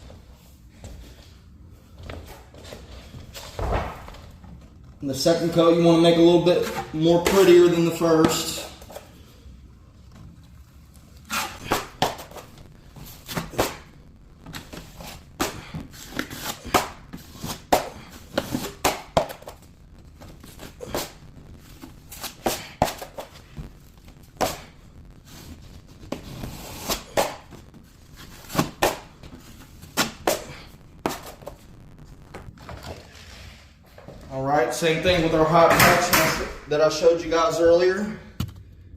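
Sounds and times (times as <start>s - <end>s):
drywall knife scraping: 11.3s - 11.9s.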